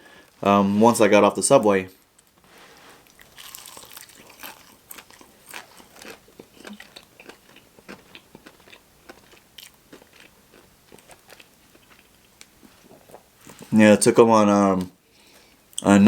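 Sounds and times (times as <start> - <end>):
chewing crunchy fried chicken: 3.0 - 13.7.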